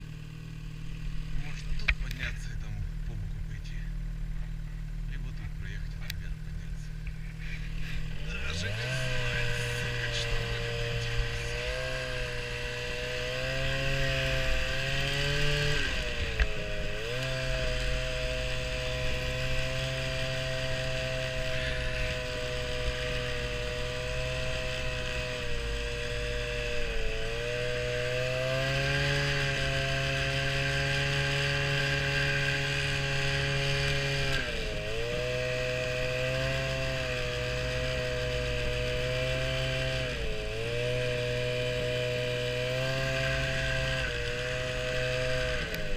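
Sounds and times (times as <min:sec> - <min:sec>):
small vehicle engine running: 0:00.0 - 0:45.9.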